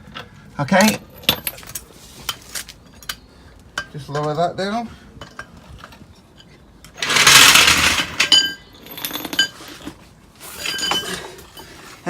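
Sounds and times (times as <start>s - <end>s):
metal clinking: 7.0s - 9.6s.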